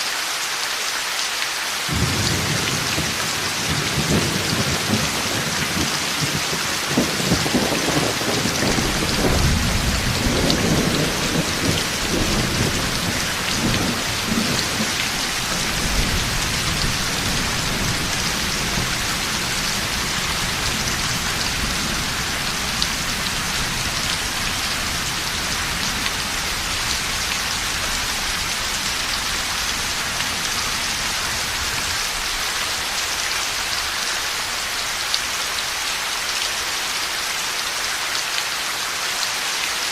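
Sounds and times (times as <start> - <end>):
heavy rain pouring: 0.0 - 39.9
thunder rumbling: 1.9 - 32.2.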